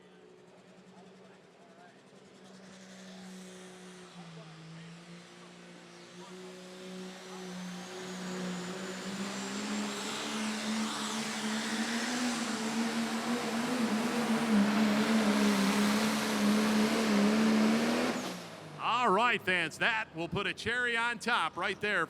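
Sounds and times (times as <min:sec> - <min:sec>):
diesel truck engine running hard: 0:06.1 - 0:19.6.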